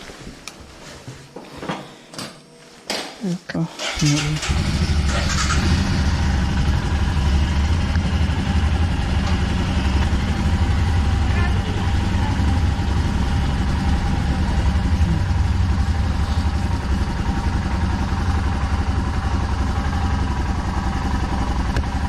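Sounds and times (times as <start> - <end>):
motorcycle engine thumping: 6.2 - 12.4.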